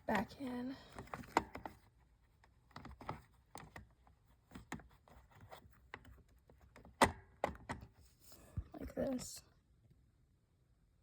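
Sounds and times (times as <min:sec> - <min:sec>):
plastic parts clicking and tapping: 0:00.0 - 0:07.9.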